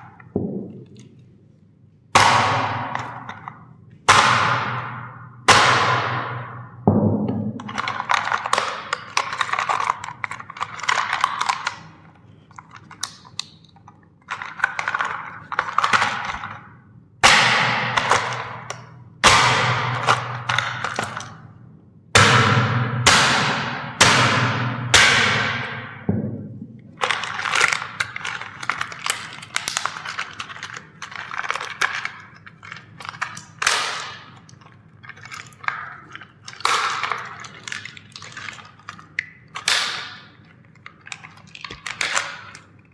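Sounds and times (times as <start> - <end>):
sharp loud plastic cracks: 2.1 - 21.6, 22.2 - 42.9
plastic toys crackling and crunching: 7.6 - 21.5, 26.9 - 42.9.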